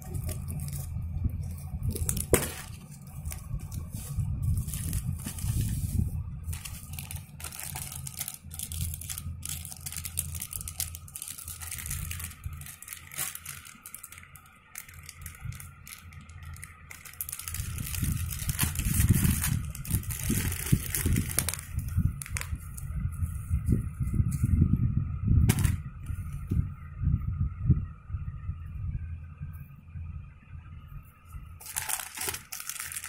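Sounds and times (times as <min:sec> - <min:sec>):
low rumble of handling noise: 0:00.0 - 0:33.0
packaging crinkling and tearing: 0:01.9 - 0:03.9, 0:04.5 - 0:05.8, 0:06.5 - 0:22.5, 0:31.6 - 0:33.0.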